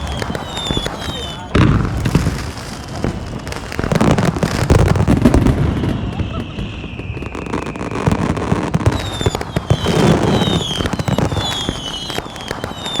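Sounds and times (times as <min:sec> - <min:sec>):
falling whistles: 0:00.0 - 0:01.6, 0:05.3 - 0:13.0
fireworks bangs and crackles: 0:00.0 - 0:13.0.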